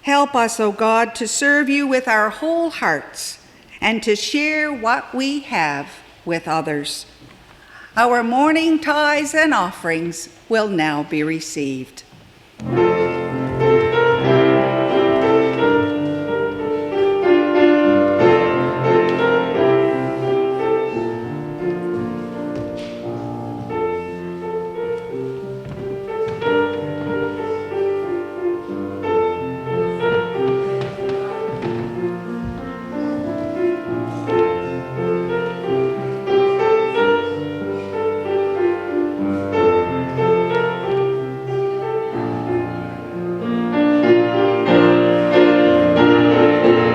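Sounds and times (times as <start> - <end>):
piano music: 12.6 - 46.9.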